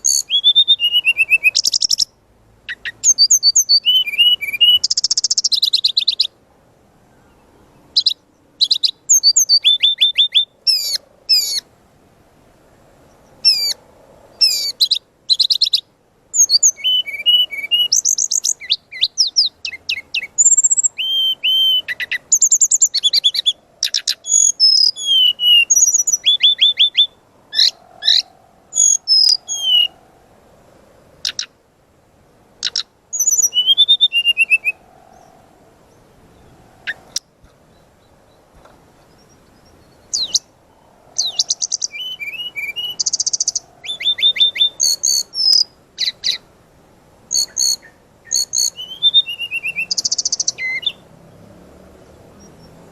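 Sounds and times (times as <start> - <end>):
bird singing whistles and trills: 0.0 - 6.4, 7.2 - 11.6, 13.1 - 13.8, 14.4 - 30.0, 31.2 - 31.5, 32.6 - 35.4, 39.0 - 46.4, 47.3 - 51.1.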